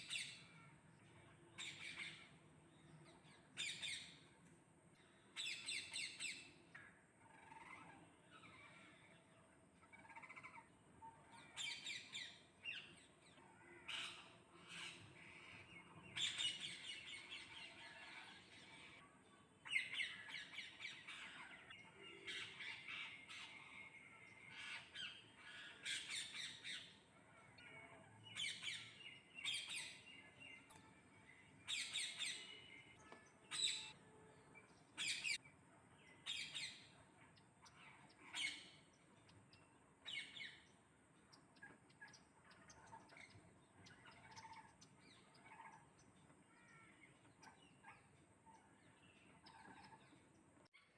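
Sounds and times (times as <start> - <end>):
parrots squawking and chirping: 7.2 - 8.9, 9.9 - 10.6, 37.7 - 38.8.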